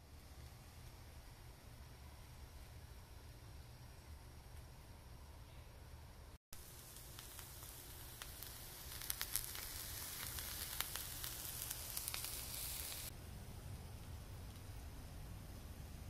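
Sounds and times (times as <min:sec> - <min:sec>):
crackling pops: 0:06.6 - 0:13.1
vegetables sizzling on a griddle: 0:06.6 - 0:13.1.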